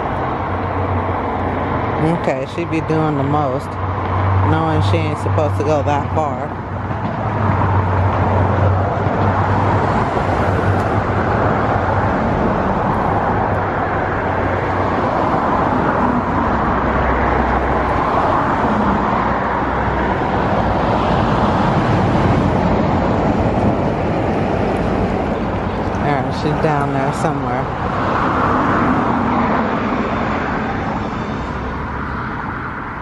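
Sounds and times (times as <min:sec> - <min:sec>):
low engine hum: 0:00.0 - 0:33.0
passing vehicles rushing: 0:00.0 - 0:33.0.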